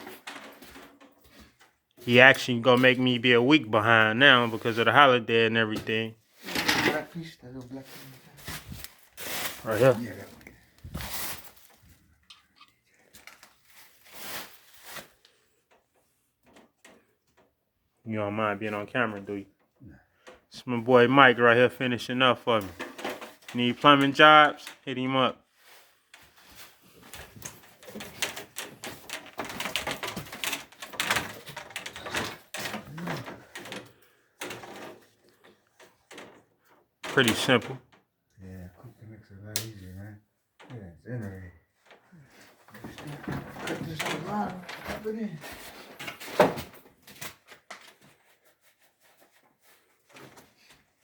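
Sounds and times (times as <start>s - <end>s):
plumbing parts clicking and clattering: 0.0s - 7.1s, 18.2s - 24.8s, 26.9s - 38.1s, 41.8s - 48.4s
small parts clicking and rustling: 27.0s - 37.6s.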